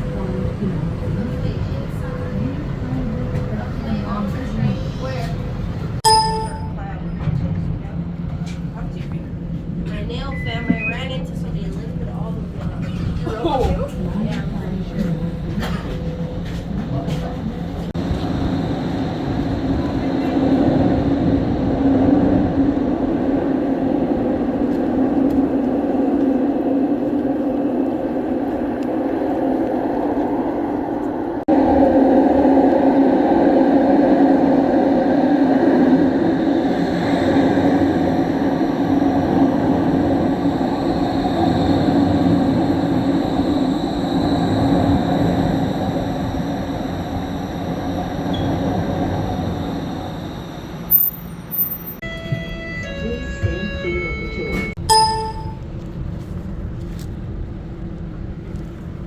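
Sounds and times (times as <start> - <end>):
light rail train rumbling: 0.0 - 59.0
faint high whine: 36.6 - 55.6.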